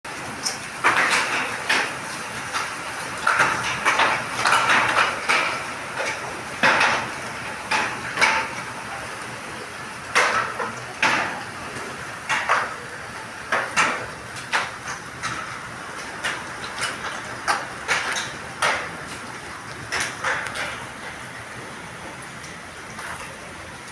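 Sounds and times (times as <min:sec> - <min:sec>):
hailstones knocking on hard surface: 0:00.8 - 0:08.6.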